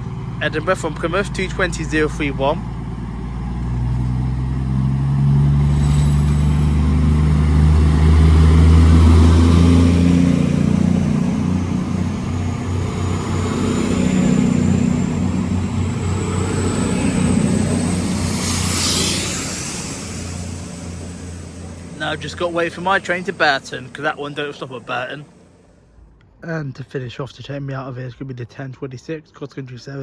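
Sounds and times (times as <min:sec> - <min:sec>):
diesel train engines running hard: 0:00.0 - 0:26.1
high whine rising in pitch: 0:00.0 - 0:26.1
burst of hiss: 0:18.0 - 0:21.9.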